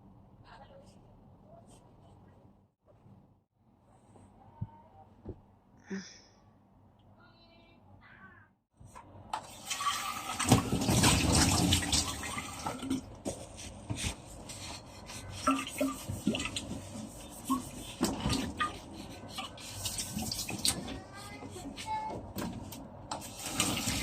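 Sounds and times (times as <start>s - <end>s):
tap water running into sink: 9.4s - 13.0s, 23.1s - 24.0s.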